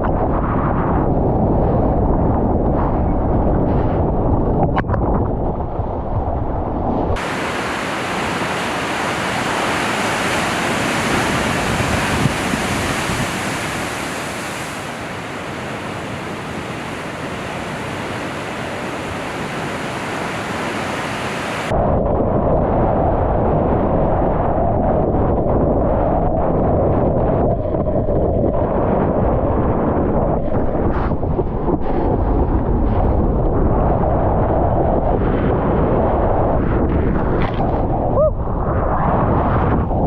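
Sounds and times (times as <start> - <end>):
wind buffeting microphone: 0.0 - 40.0
ocean waves rushing: 7.2 - 21.7.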